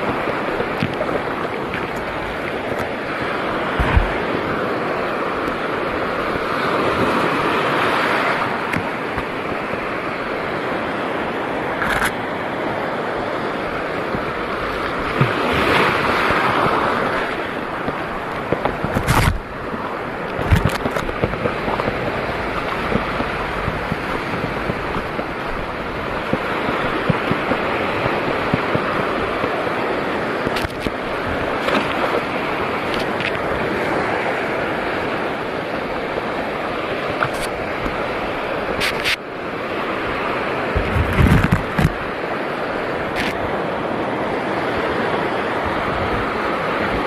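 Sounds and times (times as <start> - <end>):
sea water washing: 0.0 - 47.0
wind rumbling on microphone: 0.0 - 47.0
sharp knocks or splashes: 3.8 - 4.2.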